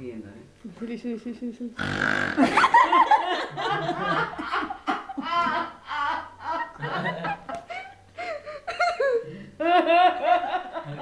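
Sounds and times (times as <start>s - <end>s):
adults laughing: 2.4s - 8.0s, 8.7s - 11.0s.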